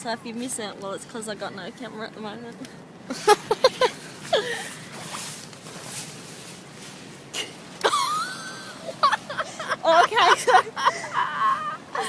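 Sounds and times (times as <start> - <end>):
hissing rustle: 3.9 - 7.9
person squealing: 11.0 - 12.0.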